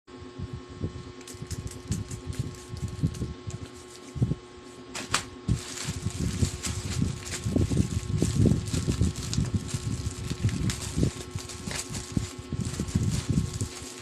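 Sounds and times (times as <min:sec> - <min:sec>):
faint steady hum: 0:00.1 - 0:14.0
parcel rustling: 0:05.0 - 0:14.0.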